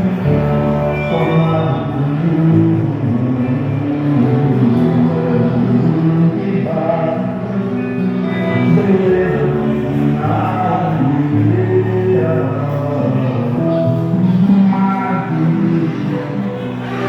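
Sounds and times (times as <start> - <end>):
instrumental accompaniment: 0.0 - 17.0
voices singing held notes: 0.0 - 17.0.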